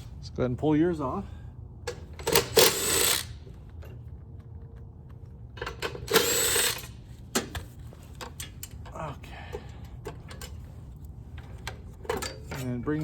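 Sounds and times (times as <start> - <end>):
tool and parts clicking: 1.9 - 3.4, 5.6 - 8.9.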